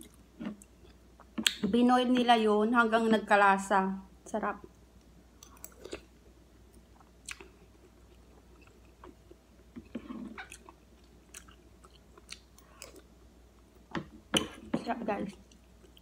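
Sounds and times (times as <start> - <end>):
person chewing: 5.4 - 13.1.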